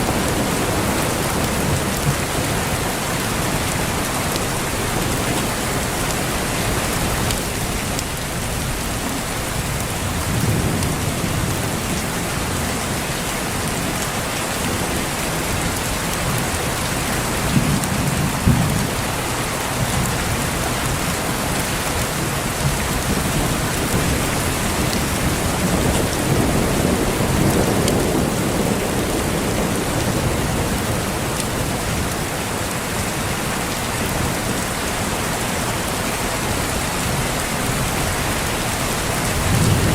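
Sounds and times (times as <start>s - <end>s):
heavy rain: 0.0s - 39.9s
rolling thunder: 9.6s - 12.9s, 22.6s - 32.2s, 37.9s - 39.9s
thunder claps: 39.1s - 39.9s.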